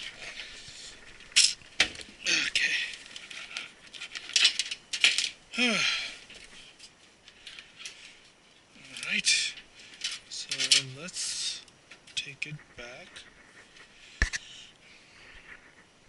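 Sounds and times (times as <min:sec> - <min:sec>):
paper rustling: 0:06.3 - 0:11.0.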